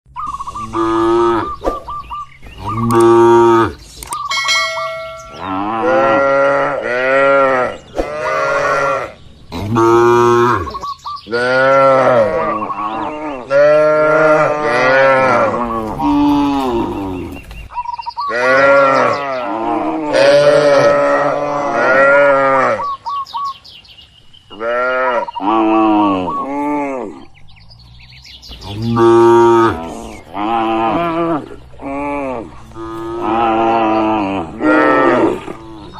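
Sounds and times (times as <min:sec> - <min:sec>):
cattle mooing: 0:00.6 - 0:01.6, 0:04.9 - 0:17.4, 0:18.3 - 0:22.9, 0:28.6 - 0:35.9.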